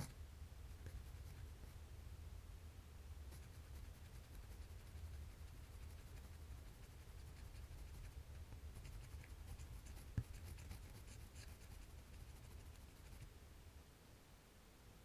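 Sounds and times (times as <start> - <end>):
drawing strokes scratching on paper: 3.3 - 13.3.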